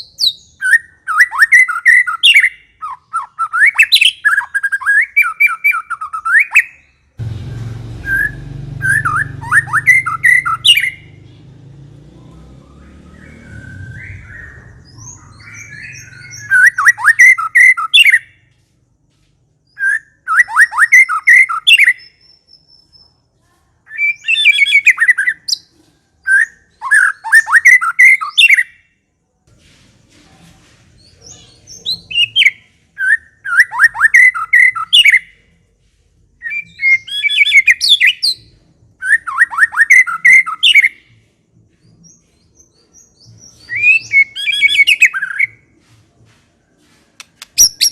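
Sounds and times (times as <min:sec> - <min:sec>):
bird chattering song bursts: 0:47.4 - 0:47.9.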